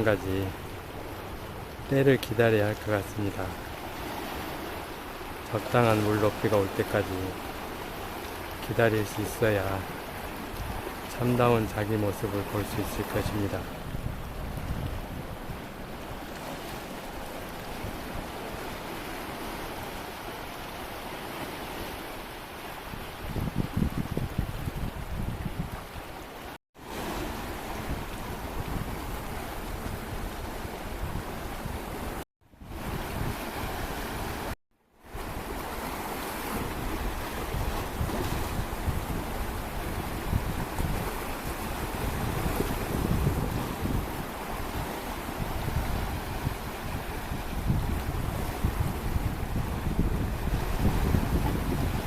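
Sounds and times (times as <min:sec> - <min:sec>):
surf washing: 0:00.0 - 0:52.0
wind buffeting microphone: 0:13.6 - 0:16.4, 0:22.9 - 0:26.2, 0:27.3 - 0:34.4, 0:36.5 - 0:52.0.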